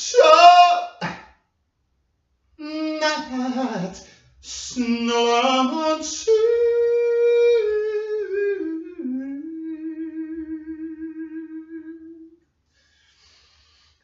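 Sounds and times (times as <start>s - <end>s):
person singing wordless held notes: 0.0s - 1.1s, 2.6s - 12.4s.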